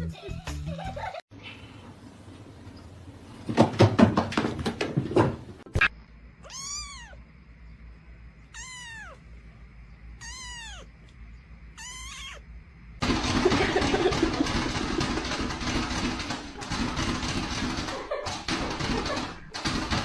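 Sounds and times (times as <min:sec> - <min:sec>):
cat meowing: 0:06.4 - 0:07.2, 0:08.4 - 0:09.3, 0:10.2 - 0:11.0, 0:11.7 - 0:12.5.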